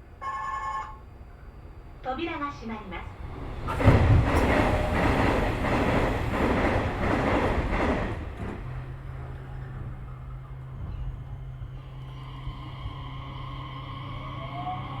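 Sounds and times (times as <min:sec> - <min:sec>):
train doors shutting thud: 0:03.4 - 0:10.2
steady low hum: 0:08.2 - 0:15.0.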